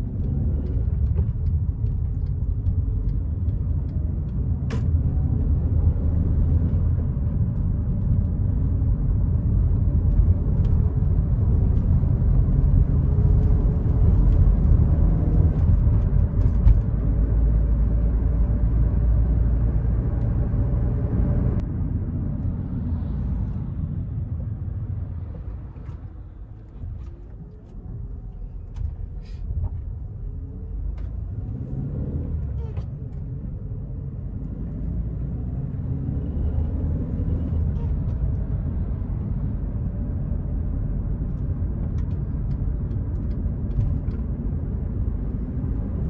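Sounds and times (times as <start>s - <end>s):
car engine under throttle: 0.0s - 25.6s
road noise inside cabin: 0.0s - 46.0s.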